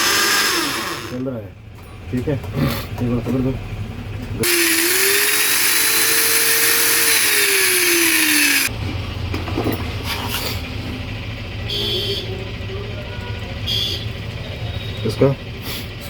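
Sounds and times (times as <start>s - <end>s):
angle grinder motor whining: 0.0s - 1.2s, 4.4s - 8.7s.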